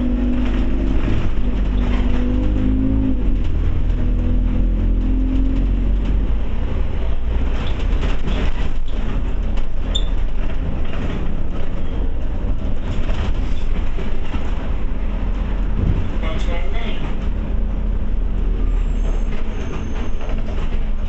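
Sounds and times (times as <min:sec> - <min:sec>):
bus engine and road rumble: 0:00.0 - 0:21.0
body clicks and rattles: 0:04.9 - 0:17.6, 0:19.3 - 0:21.0.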